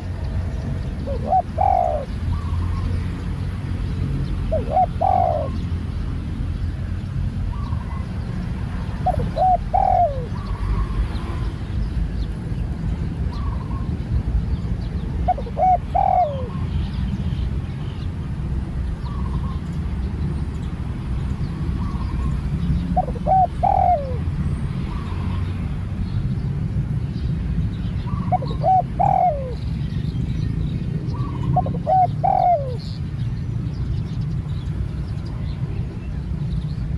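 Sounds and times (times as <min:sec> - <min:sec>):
dove cooing: 0:00.9 - 0:03.0, 0:04.3 - 0:05.9, 0:07.5 - 0:11.5, 0:15.2 - 0:16.8, 0:21.8 - 0:24.3, 0:28.1 - 0:29.9, 0:31.0 - 0:33.0.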